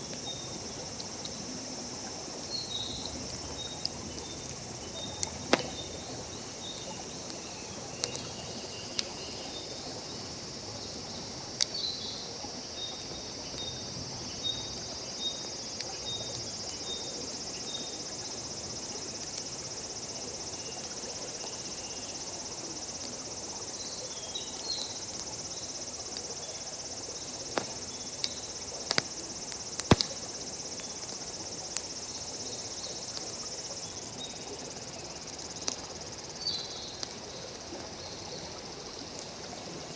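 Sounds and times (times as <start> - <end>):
high insect chorus: 0.0 - 39.9
insect chirping: 0.0 - 39.9
wood fire crackling and popping: 3.1 - 8.3, 27.5 - 30.4.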